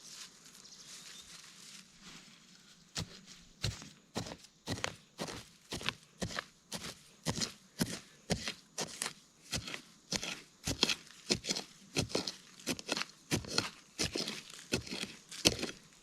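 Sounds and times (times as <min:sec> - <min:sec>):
crunching strikes on forest ground: 0:02.9 - 0:16.0.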